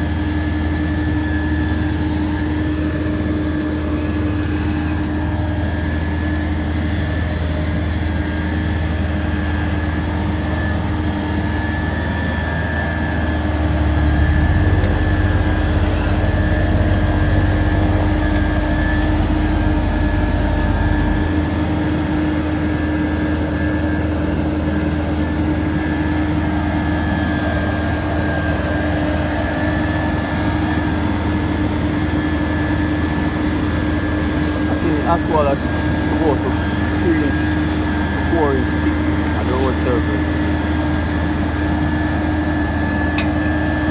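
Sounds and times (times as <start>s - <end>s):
heavy machinery engine rumbling: 0.0s - 43.9s.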